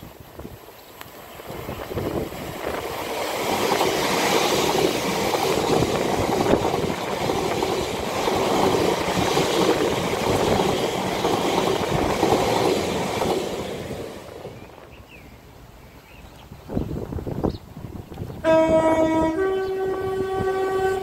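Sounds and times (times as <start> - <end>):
wheels clacking on rails: 0.0 - 15.2
electric train passing: 0.0 - 15.8.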